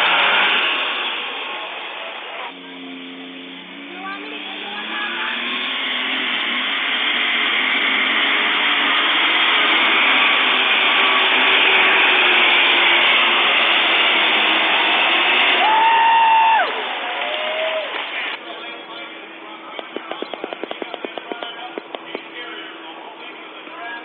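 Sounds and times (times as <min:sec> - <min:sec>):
tractor engine at full throttle: 0:00.0 - 0:24.0.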